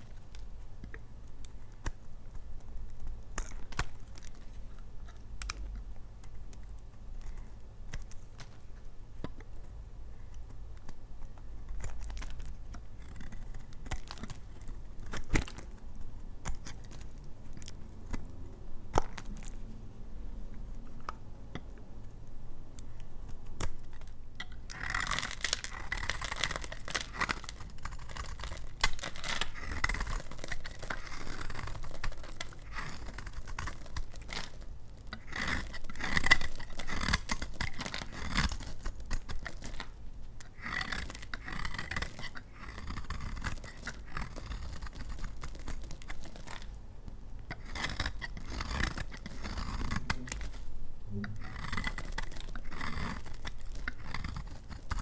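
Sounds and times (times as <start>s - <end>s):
blade cutting through soap: 10.3s - 19.7s, 22.9s - 46.8s, 47.4s - 55.0s.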